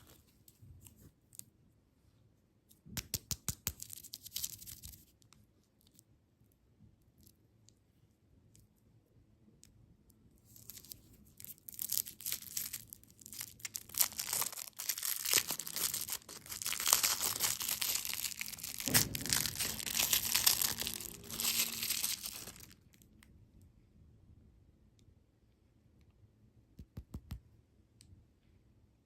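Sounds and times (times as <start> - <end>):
packaging crinkling and tearing: 10.6 - 23.0.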